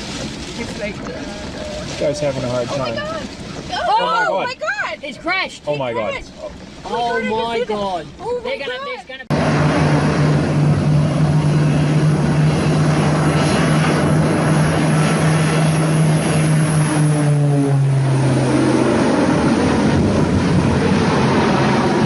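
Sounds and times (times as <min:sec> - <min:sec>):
broad rushing noise: 0:00.0 - 0:22.0
propeller aircraft engine droning: 0:09.2 - 0:22.0.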